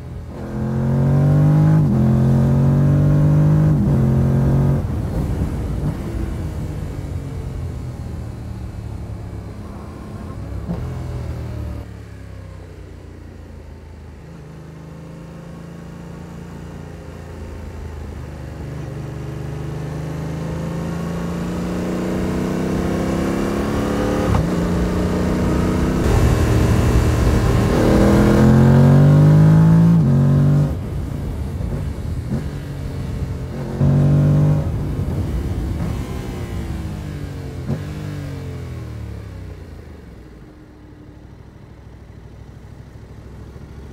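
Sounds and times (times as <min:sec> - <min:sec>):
motorcycle engine revving: 0:00.2 - 0:07.5, 0:19.4 - 0:39.8.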